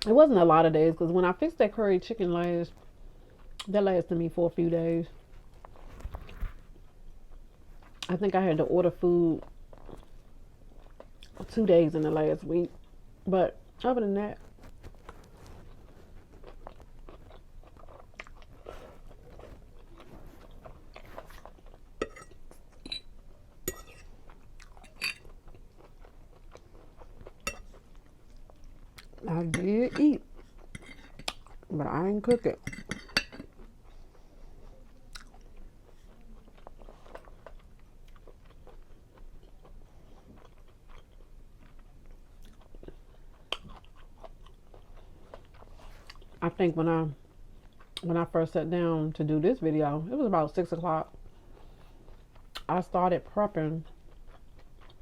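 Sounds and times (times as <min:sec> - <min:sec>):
person chewing: 0:14.5 - 0:31.7, 0:33.1 - 0:46.4, 0:53.8 - 0:55.0.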